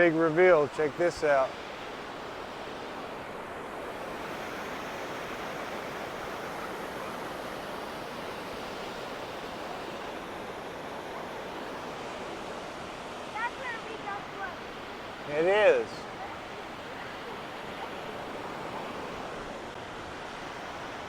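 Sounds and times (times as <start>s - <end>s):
waterfall rushing: 12.8s - 21.0s.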